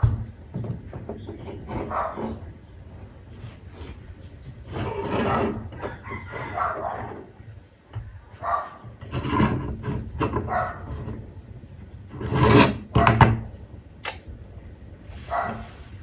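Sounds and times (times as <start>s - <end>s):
sharp click: 14.0s - 14.3s.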